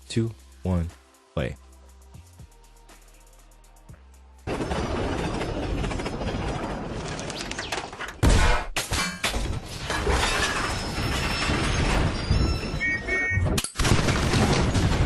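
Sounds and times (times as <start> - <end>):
train crashing and smashing: 4.5 - 8.5, 9.2 - 13.2.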